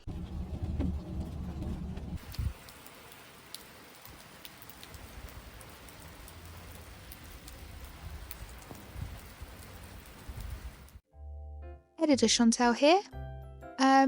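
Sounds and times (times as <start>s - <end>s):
low rumble: 0.0s - 2.6s
steady rain falling: 0.0s - 11.0s
ticks of raindrops: 0.0s - 11.0s.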